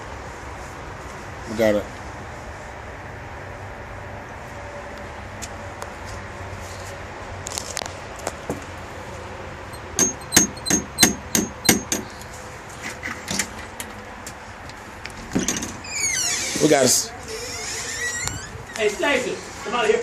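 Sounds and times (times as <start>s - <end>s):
knocking on a door: 10.0s - 12.1s.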